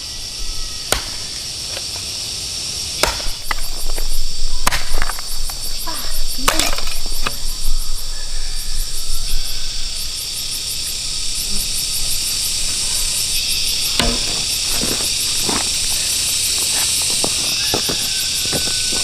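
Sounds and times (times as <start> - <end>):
chorus of insects singing: 0.0 - 19.0
sharp knocks from hand work: 14.0 - 14.5.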